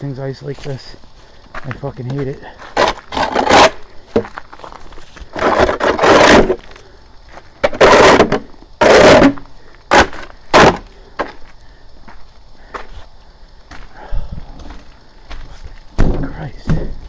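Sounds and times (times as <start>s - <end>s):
snow shovel chopping: 2.8s - 3.8s, 5.4s - 6.6s, 7.6s - 10.8s
snow shovel scraping icy snow: 2.8s - 3.8s, 5.4s - 6.6s.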